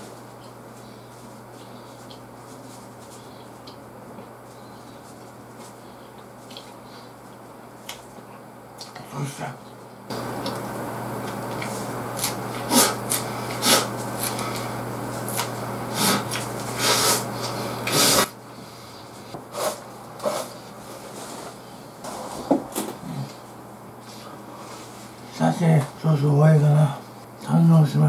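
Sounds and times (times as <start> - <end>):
low background hum: 0.0 - 28.0
close chewing: 6.0 - 8.1
heavy breaths through nose: 15.9 - 20.5.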